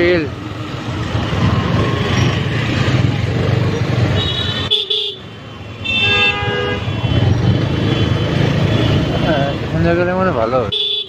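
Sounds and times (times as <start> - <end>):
wind: 0.0 - 11.0
vehicle horns honking: 4.1 - 8.2, 10.7 - 11.0.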